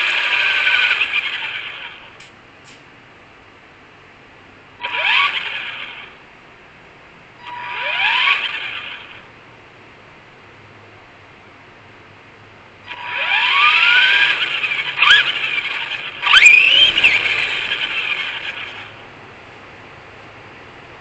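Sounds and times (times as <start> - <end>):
electric motor whining: 0.0 - 2.3, 4.8 - 6.2, 7.4 - 9.3, 12.8 - 19.1.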